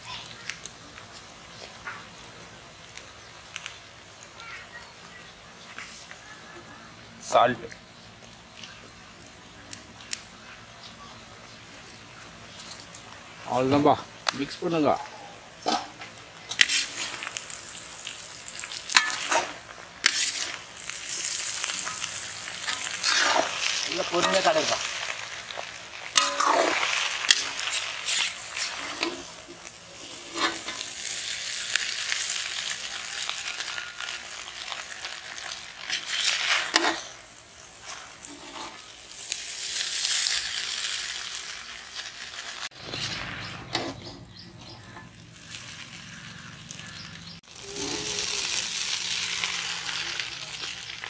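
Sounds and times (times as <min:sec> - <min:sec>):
noodles sizzling in a wok: 0:00.0 - 0:51.0
metal spatula scraping a wok: 0:15.6 - 0:31.8, 0:35.8 - 0:40.4, 0:42.7 - 0:46.2.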